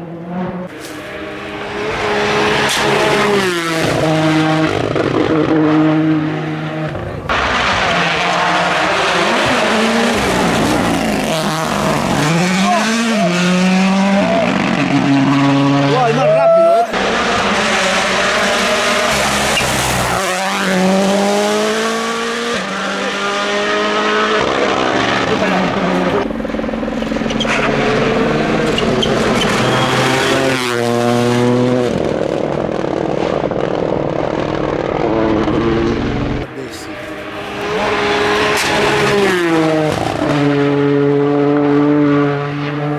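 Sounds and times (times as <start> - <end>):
rally car engine at speed: 0.0 - 42.9
tyre and road noise: 0.0 - 42.9
tyre noise: 8.2 - 22.5, 24.6 - 31.2.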